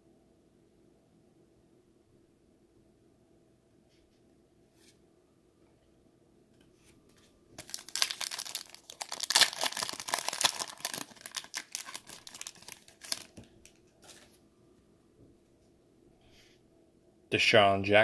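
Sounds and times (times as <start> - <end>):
foil wrapper tearing and crinkling: 7.6 - 14.3.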